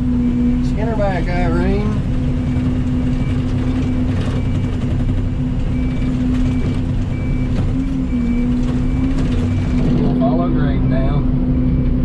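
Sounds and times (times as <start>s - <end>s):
diesel engine under load: 0.0s - 12.0s
motion alarm beeps: 5.7s - 9.8s.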